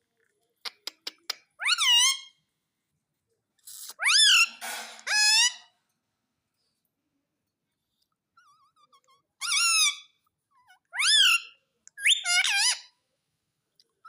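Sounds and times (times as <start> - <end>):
parrot shrill calls: 1.6 - 2.4, 3.9 - 5.7, 9.4 - 10.2, 10.9 - 12.9.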